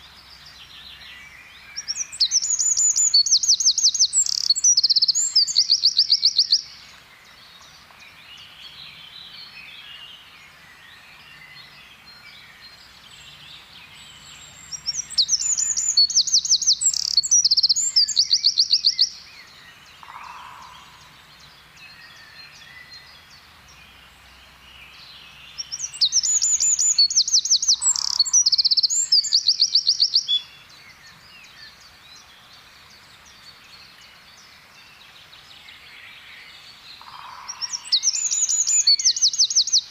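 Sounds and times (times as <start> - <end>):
wren singing trills: 0.0 - 6.8, 14.1 - 19.3, 24.9 - 30.5, 37.0 - 39.9
faint bird chirping: 0.0 - 39.9.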